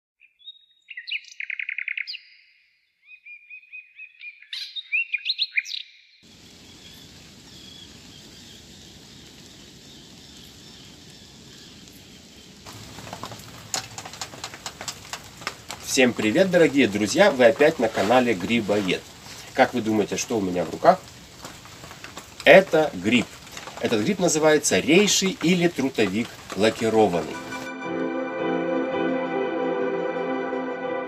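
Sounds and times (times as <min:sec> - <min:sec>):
songbird chirping and singing: 0:00.2 - 0:08.6
outdoor ambience hiss: 0:06.2 - 0:27.7.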